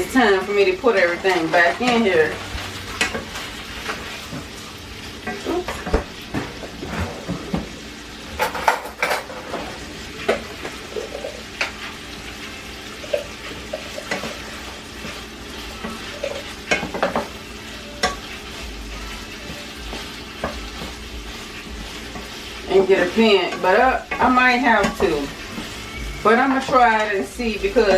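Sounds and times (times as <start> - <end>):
chicken sizzling in a frying pan: 0.0 - 27.9.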